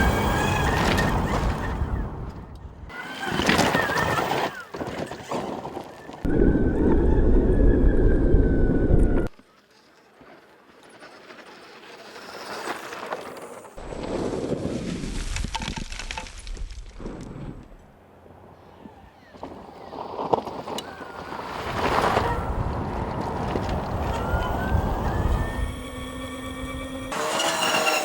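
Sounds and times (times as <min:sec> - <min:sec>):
wind noise on microphone: 0:06.3 - 0:09.3, 0:19.4 - 0:26.9
electric motor whine: 0:23.9 - 0:28.0.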